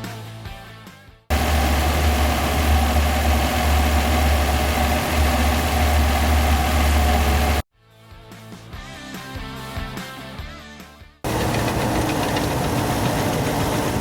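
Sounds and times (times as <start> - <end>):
car engine running: 1.3 - 7.6, 11.3 - 14.0.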